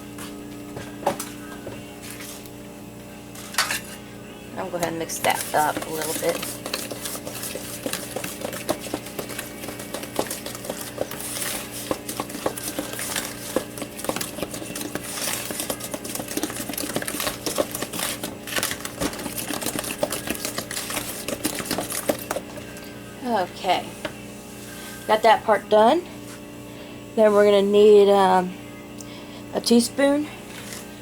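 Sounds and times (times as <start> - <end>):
whisk clicking against bowl: 4.8 - 22.5.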